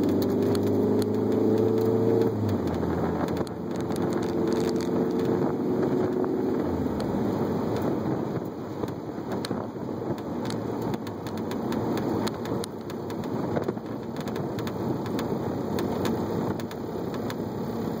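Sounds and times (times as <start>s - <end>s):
car engine rumbling in cabin: 0.0s - 18.0s.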